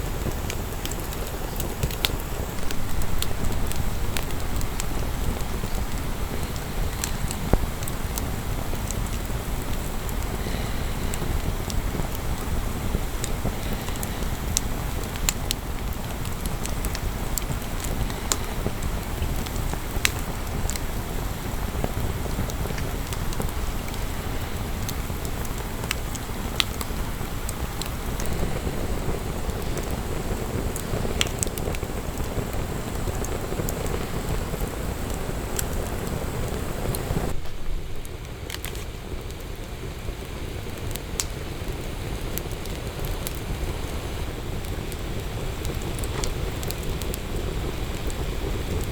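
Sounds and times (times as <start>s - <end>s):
steady low rumble: 0.0s - 39.3s
wood fire crackling and popping: 0.0s - 48.9s.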